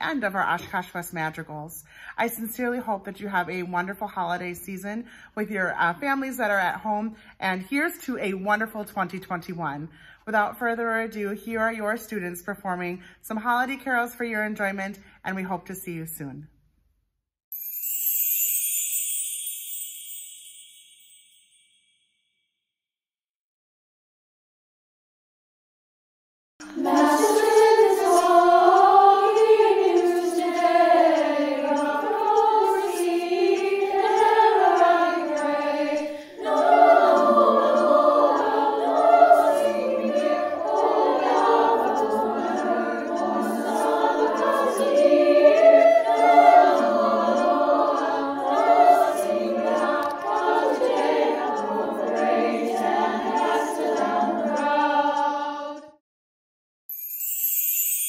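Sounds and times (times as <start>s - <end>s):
choir singing in harmony: 26.6s - 56.0s.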